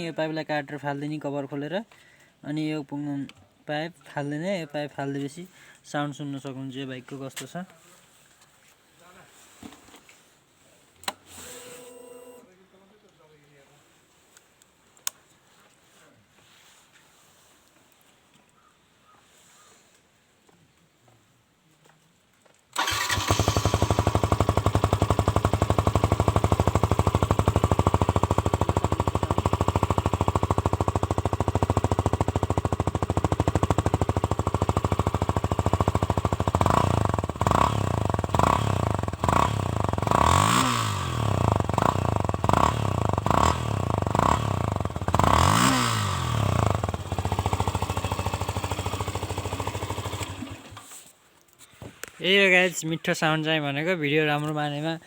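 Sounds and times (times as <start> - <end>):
motorcycle engine idling and revving: 22.8 - 50.9.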